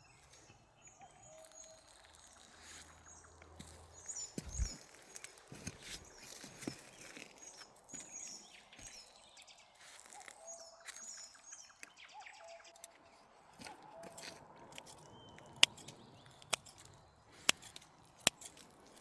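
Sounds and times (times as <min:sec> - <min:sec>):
high bird chirps: 0:00.0 - 0:05.3.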